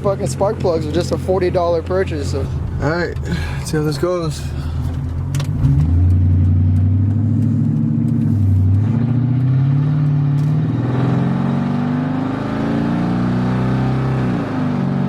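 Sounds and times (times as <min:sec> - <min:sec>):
car engine accelerating: 0:00.2 - 0:15.0.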